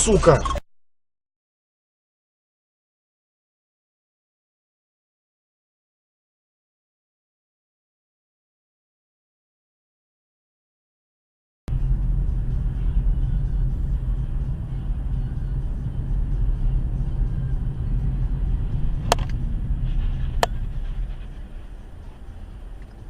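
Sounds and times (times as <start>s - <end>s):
car driving rumble: 11.7s - 23.0s.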